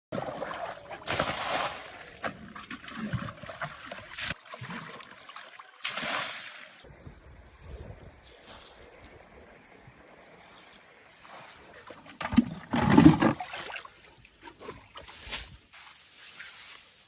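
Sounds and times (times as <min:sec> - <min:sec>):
loud water splashes: 0:00.2 - 0:02.2
water trickling in a pool: 0:13.4 - 0:16.8.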